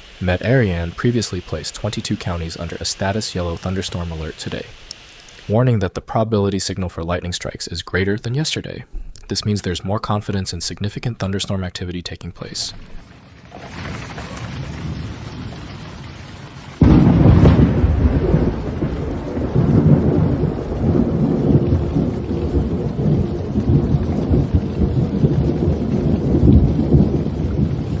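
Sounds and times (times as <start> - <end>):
rain hissing: 0.0 - 5.8, 6.5 - 28.0
thunder clap and rumble: 12.8 - 28.0.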